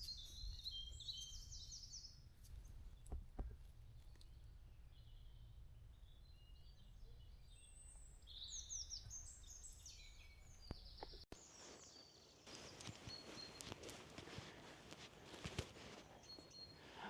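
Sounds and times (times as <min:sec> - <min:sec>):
birds chirping: 0:06.1 - 0:17.0
faint rustle: 0:11.4 - 0:17.0.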